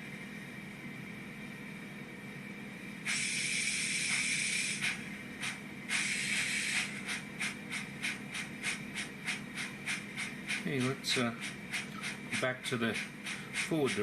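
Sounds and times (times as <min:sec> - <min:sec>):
faint motor hum: 0:00.0 - 0:14.0
steam hiss: 0:03.0 - 0:14.0
steam locomotive chuffs: 0:03.0 - 0:14.0.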